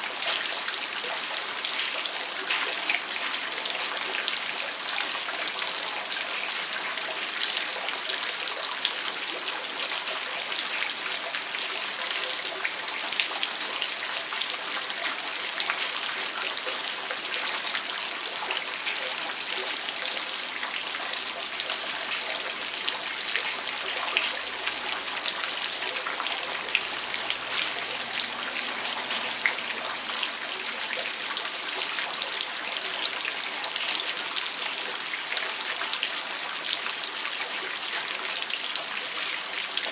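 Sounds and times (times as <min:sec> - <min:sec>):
heavy rain falling: 0:19.2 - 0:33.5.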